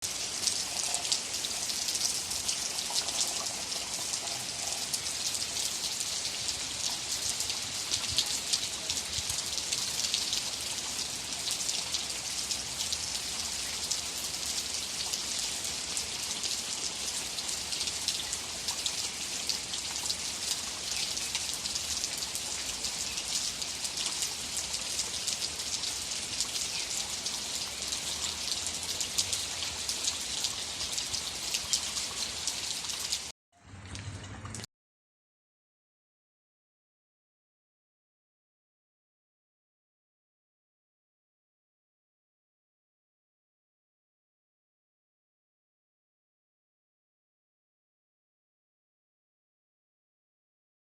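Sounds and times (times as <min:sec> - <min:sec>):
steady rain hiss: 0:00.0 - 0:33.3.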